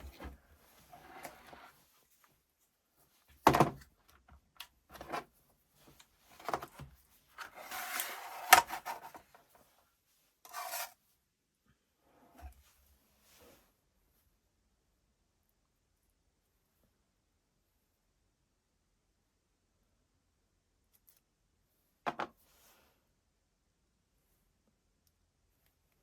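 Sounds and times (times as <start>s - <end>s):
rubbing and scraping: 7.4s - 9.3s, 10.5s - 11.0s.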